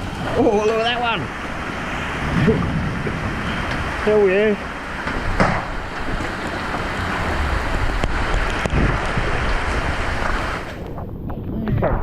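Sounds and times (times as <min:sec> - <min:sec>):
hail and rain pelting: 0:00.0 - 0:10.9
wind gusting on microphone: 0:00.0 - 0:12.0
sharp hail knocks: 0:05.0 - 0:06.9.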